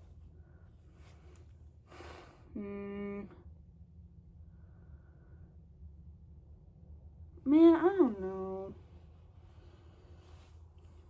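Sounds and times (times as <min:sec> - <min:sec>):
person breathing: 0:00.3 - 0:02.6
person humming: 0:02.6 - 0:03.4.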